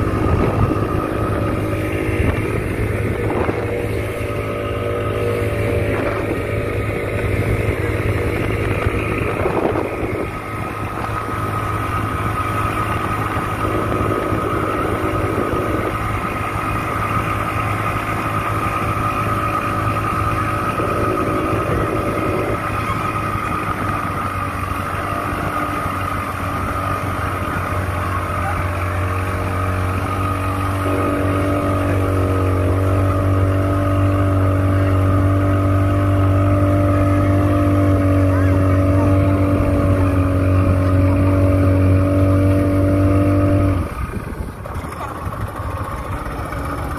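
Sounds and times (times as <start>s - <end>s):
engine running steadily: 0.0s - 46.9s.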